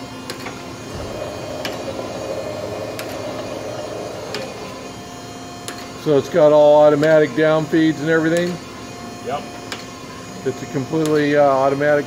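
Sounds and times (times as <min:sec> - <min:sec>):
surface grinder humming: 0:00.8 - 0:06.3.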